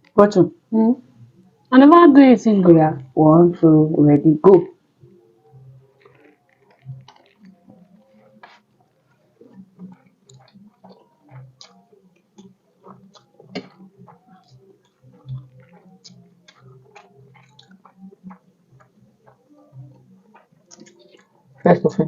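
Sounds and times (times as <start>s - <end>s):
chewing and mouth smacking: 5.9s - 21.6s.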